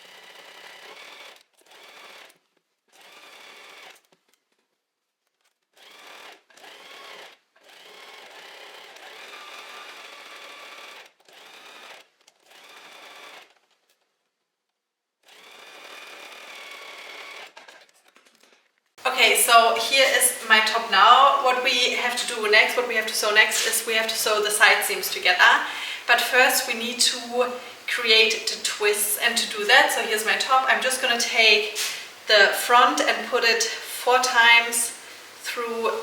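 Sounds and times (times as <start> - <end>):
sewing machine motor whine: 0.0 - 4.1, 5.7 - 13.8, 15.2 - 17.9.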